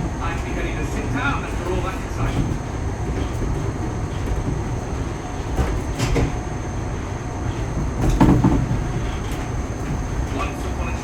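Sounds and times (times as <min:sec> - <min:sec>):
train rumble inside carriage: 0:00.0 - 0:11.0
knocks and rattles: 0:07.8 - 0:09.5.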